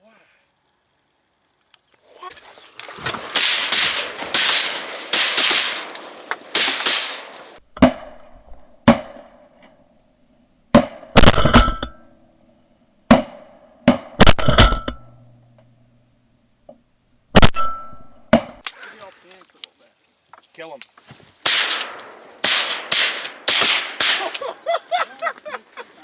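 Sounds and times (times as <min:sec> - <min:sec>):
loud rustling: 0:02.3 - 0:07.6, 0:21.1 - 0:24.6
shotgun shots: 0:02.8 - 0:07.6, 0:21.5 - 0:24.7.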